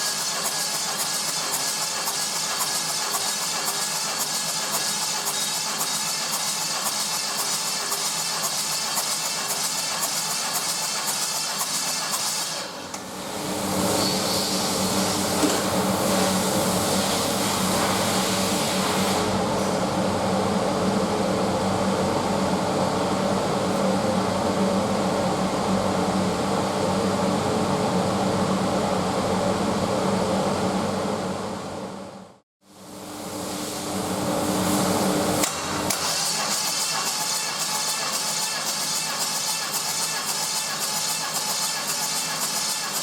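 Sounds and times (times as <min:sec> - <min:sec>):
hiss: 0:00.0 - 0:12.8, 0:16.1 - 0:19.8, 0:34.6 - 0:43.0.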